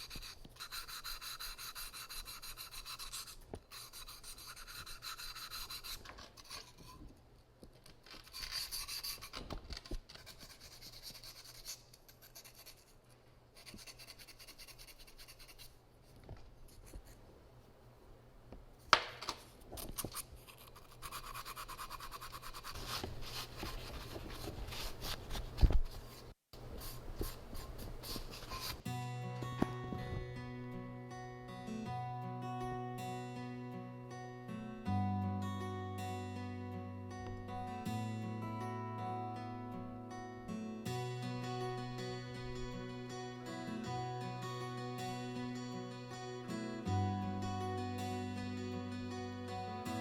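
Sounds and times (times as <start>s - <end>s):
rubbing and scraping on ceramic: 0.0s - 7.1s, 8.1s - 9.5s, 10.1s - 13.0s, 19.9s - 28.8s.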